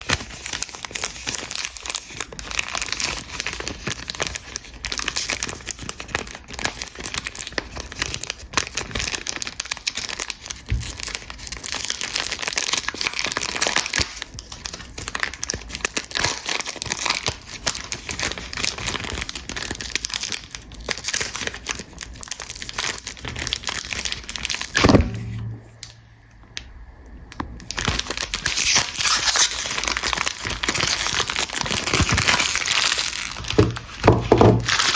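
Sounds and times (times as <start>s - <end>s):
wrapper crinkling and tearing: 0.0s - 25.1s, 27.5s - 34.9s
sharp knock: 24.8s - 25.8s.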